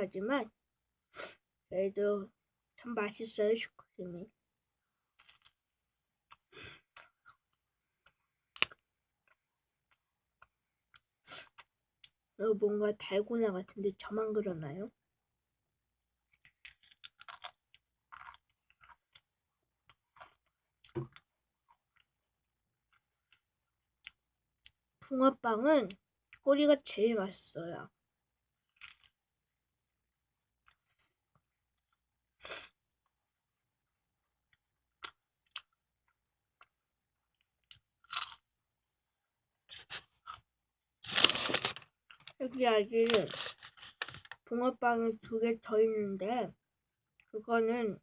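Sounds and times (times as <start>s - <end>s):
chewing pastry: 16.3s - 22.2s, 37.4s - 38.5s.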